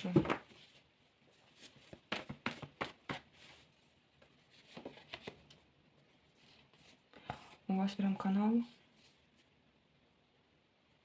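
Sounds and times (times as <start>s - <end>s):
cards shuffled and laid down: 1.6s - 3.6s, 4.2s - 5.6s.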